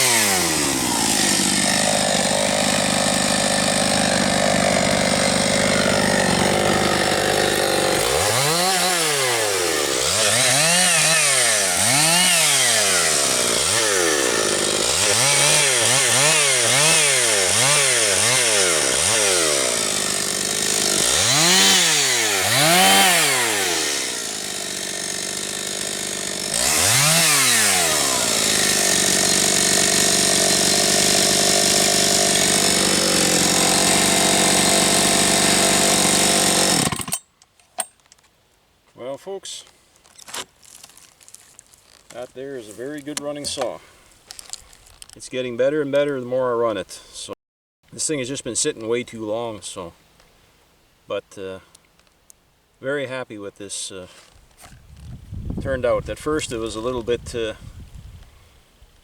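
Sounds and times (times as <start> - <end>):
chainsaw revving: 0.0 - 37.2.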